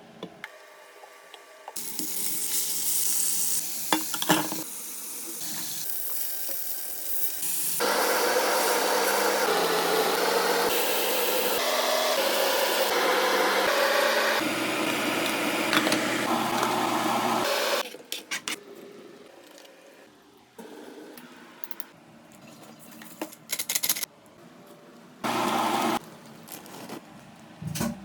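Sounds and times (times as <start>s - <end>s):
utensils clattering and clicking: 22.9s - 24.1s.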